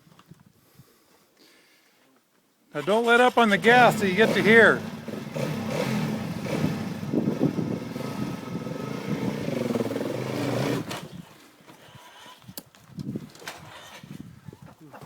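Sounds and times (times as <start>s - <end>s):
dirt bike engine revving: 2.9s - 11.1s.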